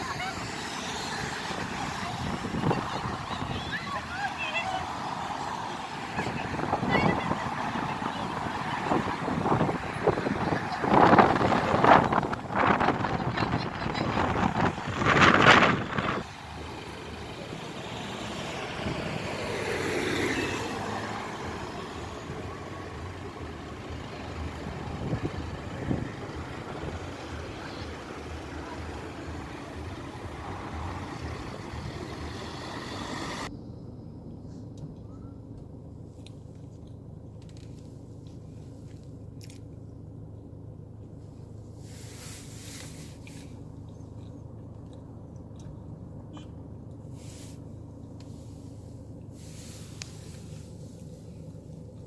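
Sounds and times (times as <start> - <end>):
vehicle passing close by: 0.0 - 33.5
street noise: 0.0 - 52.0.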